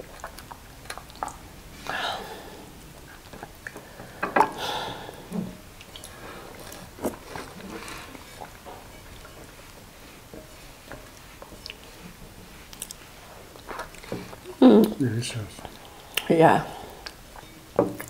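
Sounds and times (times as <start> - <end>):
chewing and lip smacks: 0.0 - 1.5, 5.8 - 9.4, 11.0 - 15.0.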